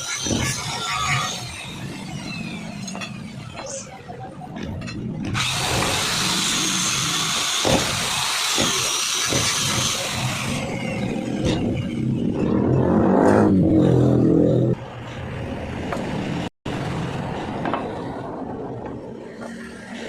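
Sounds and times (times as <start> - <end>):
power grinder sharpening blade: 5.4 - 11.7.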